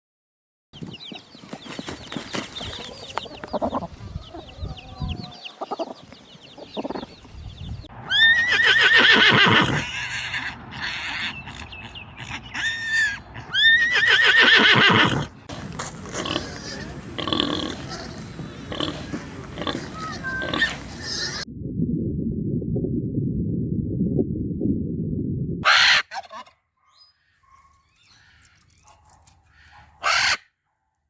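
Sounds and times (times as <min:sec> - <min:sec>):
chickens clucking and peeping: 0:00.8 - 0:07.9
horse whinnying: 0:08.1 - 0:11.4, 0:12.5 - 0:15.4.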